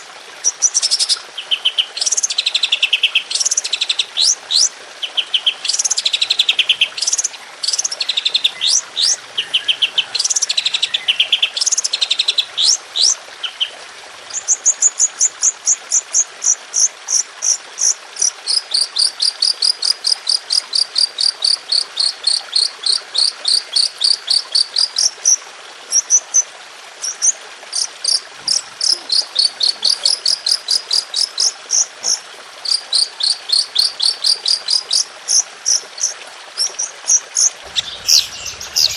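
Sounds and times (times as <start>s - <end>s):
songbird singing: 0.4s - 13.7s, 27.2s - 38.9s.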